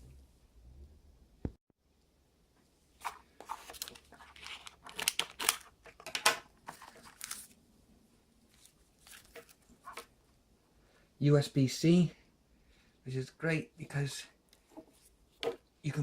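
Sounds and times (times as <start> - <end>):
packaging handling: 3.0 - 7.6
plastic packaging tearing and crinkling: 3.0 - 7.6
scissors cutting plastic packaging: 3.4 - 6.2.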